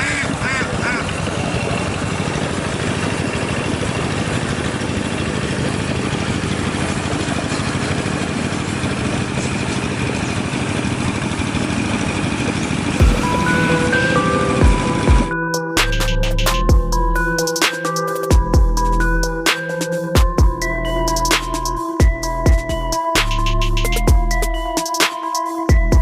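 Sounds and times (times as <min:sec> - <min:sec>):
diesel tractor engine chugging: 0:00.0 - 0:17.4
music: 0:13.0 - 0:26.0.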